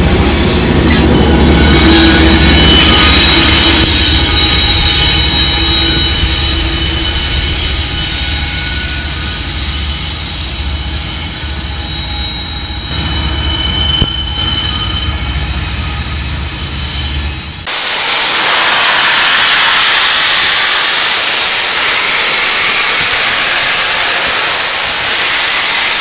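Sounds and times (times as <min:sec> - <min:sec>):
diesel locomotive rumble: 0:00.0 - 0:17.7
train wheels squealing: 0:00.0 - 0:26.0.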